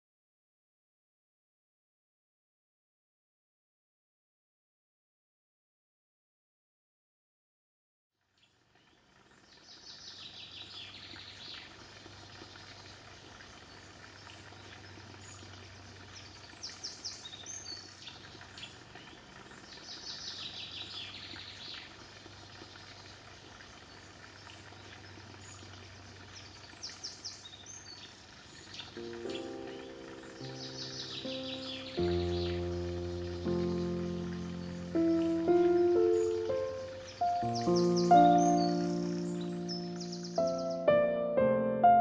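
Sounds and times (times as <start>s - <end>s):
steady background hiss: 9.1s - 42.0s
bird trilling: 29.0s - 41.0s
music: 29.0s - 42.0s.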